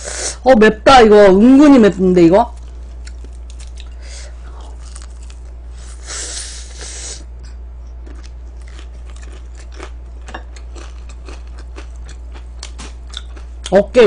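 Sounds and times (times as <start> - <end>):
steady low hum: 0.0 - 14.0
wet chewing with mouth clicks: 7.4 - 13.8.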